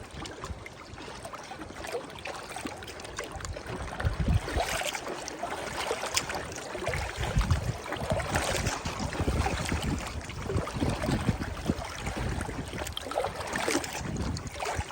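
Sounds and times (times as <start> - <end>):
river water splashing: 0.0 - 14.9
wind buffeting microphone: 3.4 - 4.8, 6.2 - 14.9.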